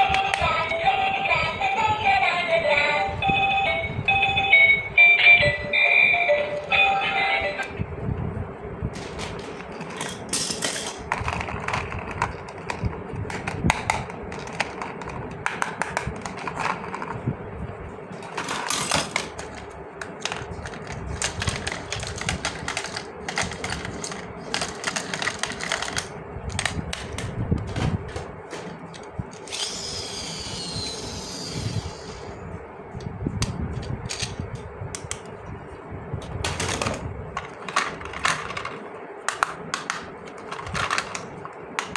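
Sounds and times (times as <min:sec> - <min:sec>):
plastic toy parts clicking and rattling: 0:09.0 - 0:17.2, 0:18.3 - 0:28.2, 0:33.8 - 0:34.4, 0:36.5 - 0:41.9.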